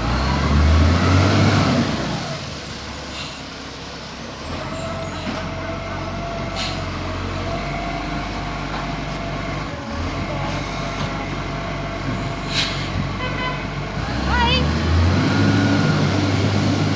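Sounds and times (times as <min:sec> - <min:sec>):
garbage truck engine running: 0:00.0 - 0:16.9
short hisses: 0:12.4 - 0:13.0.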